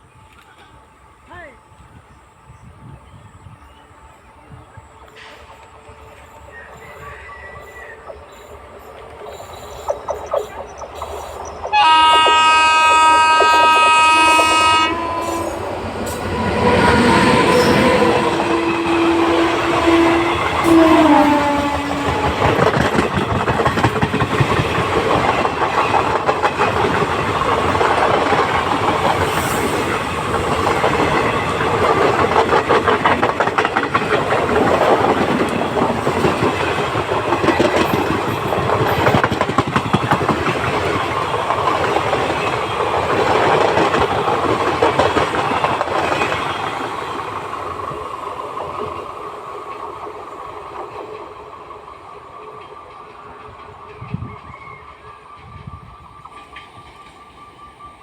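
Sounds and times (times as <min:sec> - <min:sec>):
train wheels clattering on rails: 0:05.0 - 0:58.0
train horn: 0:11.7 - 0:22.8.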